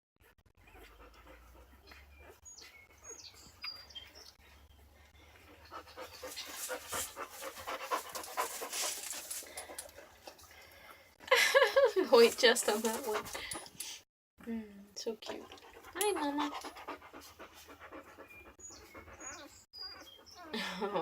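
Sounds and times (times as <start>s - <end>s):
dog panting: 0.6s - 10.6s, 12.2s - 13.8s, 15.3s - 20.5s.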